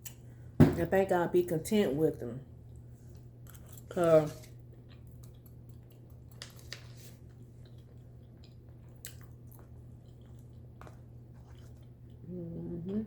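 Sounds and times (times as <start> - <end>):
low steady hum: 0.0 - 13.0
person chewing food: 2.6 - 12.2.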